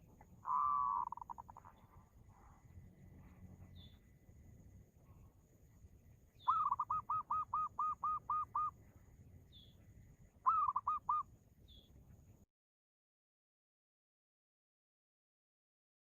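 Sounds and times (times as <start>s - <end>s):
bird calling quick repeated notes: 0.4s - 1.6s, 6.4s - 8.7s, 10.4s - 11.3s
faint high chirps: 0.4s - 12.5s.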